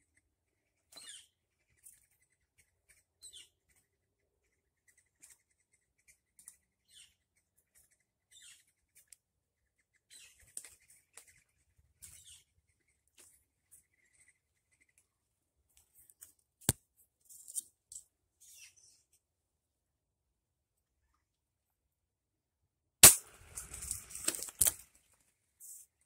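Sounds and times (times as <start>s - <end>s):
small birds chirping: 0.0s - 19.8s.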